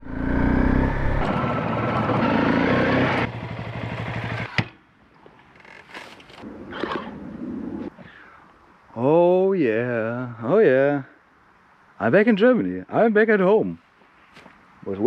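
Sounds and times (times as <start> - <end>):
motorcycle engine running: 0.0 - 4.5.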